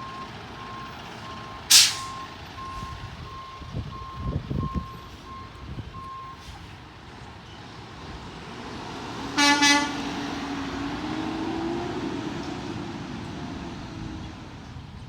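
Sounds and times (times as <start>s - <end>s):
reversing beep: 0.0s - 6.4s
truck engine: 0.0s - 15.0s
truck horn double toot: 1.7s - 2.2s, 9.4s - 10.2s.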